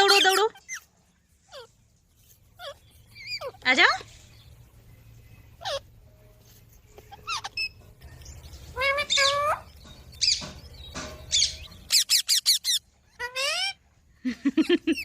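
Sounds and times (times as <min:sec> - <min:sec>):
parrot squawking: 0:00.0 - 0:01.8, 0:02.6 - 0:04.0, 0:05.5 - 0:06.0, 0:07.0 - 0:07.8, 0:08.7 - 0:10.4, 0:11.3 - 0:13.8.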